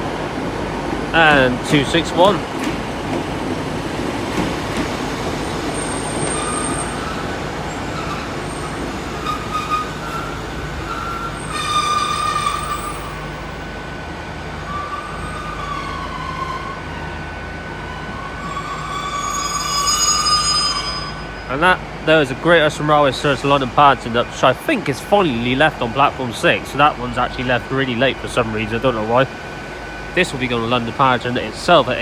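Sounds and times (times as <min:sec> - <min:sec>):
low hum of train: 0:00.0 - 0:32.0
train wheels squealing: 0:05.5 - 0:13.7, 0:14.6 - 0:17.2, 0:18.2 - 0:21.7.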